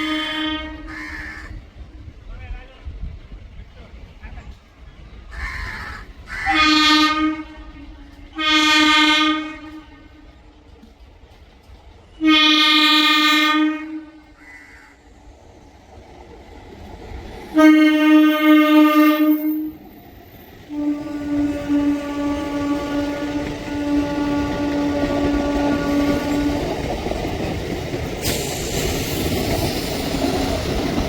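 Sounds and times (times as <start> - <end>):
train horn blasts: 0.0 - 1.2, 6.4 - 10.5, 12.2 - 14.4, 17.5 - 19.9, 20.6 - 26.9
low rail rumble: 0.0 - 31.0.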